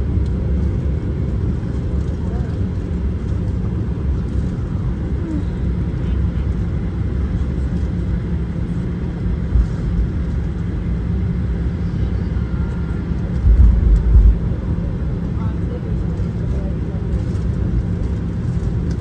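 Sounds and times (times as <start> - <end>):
aircraft engines idling: 0.0 - 19.0
low thumps: 13.4 - 14.7.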